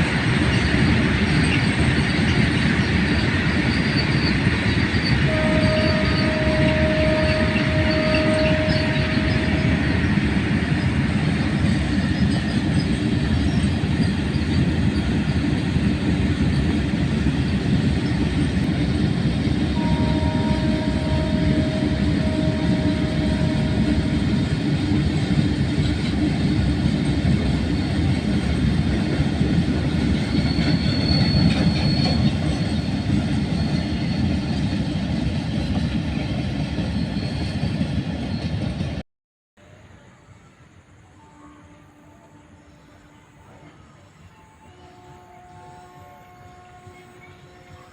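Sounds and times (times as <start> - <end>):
train wheels rumbling on track: 0.0 - 39.0
locomotive horn: 5.2 - 11.0, 19.7 - 26.2, 41.0 - 47.9.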